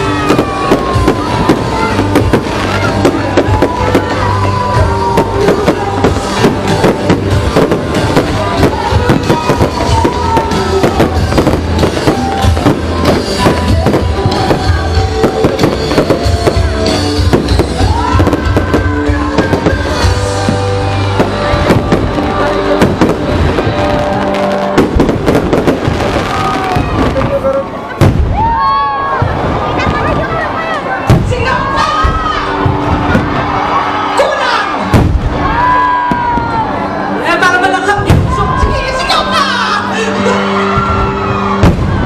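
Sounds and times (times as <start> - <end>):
loud music with bass line: 0.0 - 26.3
fireworks bangs and crackles: 0.0 - 37.0, 37.9 - 39.4, 40.7 - 42.0.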